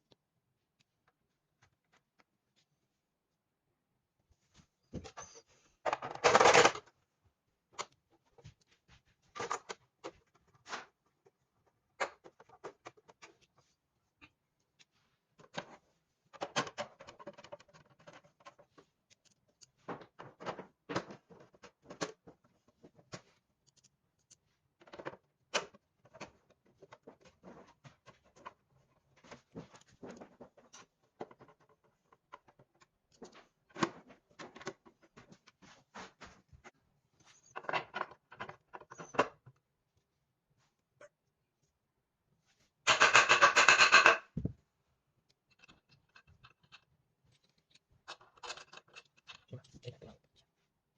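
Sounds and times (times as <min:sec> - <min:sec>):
tools and parts clicking and scraping: 0:42.9 - 0:44.5, 0:45.3 - 0:50.0.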